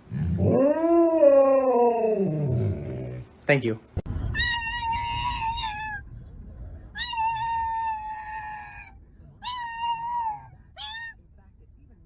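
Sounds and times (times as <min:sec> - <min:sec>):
cat yowling: 0:07.0 - 0:11.2.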